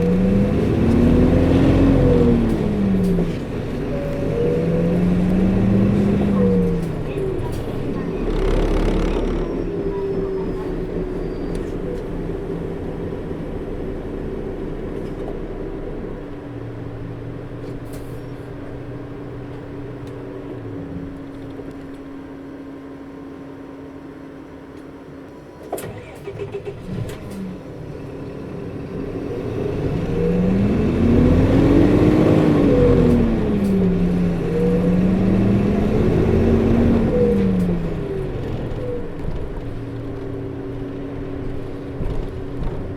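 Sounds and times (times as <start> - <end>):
bus engine humming: 0.0 - 42.9.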